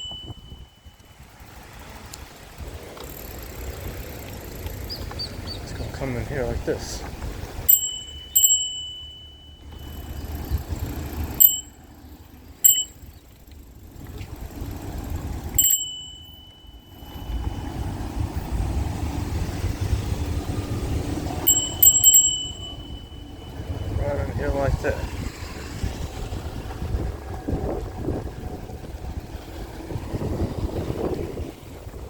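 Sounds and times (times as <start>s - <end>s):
bicycle bell dings: 0.0s - 1.4s, 7.6s - 13.6s, 15.4s - 17.8s, 21.4s - 24.6s.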